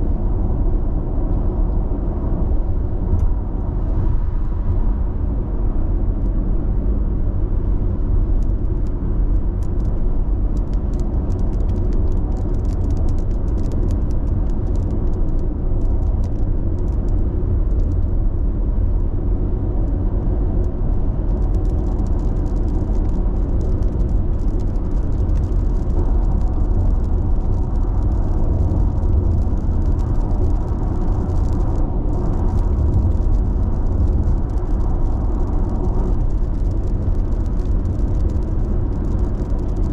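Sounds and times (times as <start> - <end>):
faint ticks and rattles: 8.3 - 18.3, 20.6 - 39.9.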